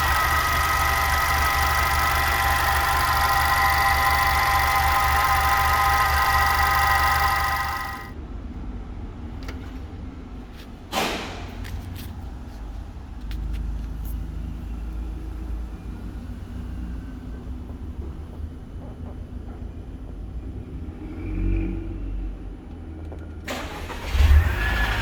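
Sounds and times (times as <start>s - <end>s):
loud noisy burst: 0.0s - 8.1s
loud multi-tone sound: 0.0s - 8.2s.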